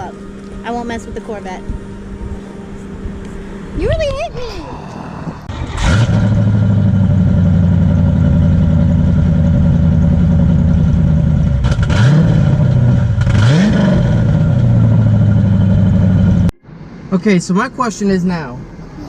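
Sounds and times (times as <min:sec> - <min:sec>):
car engine idling: 0:00.0 - 0:18.9
car engine revving: 0:00.0 - 0:19.0.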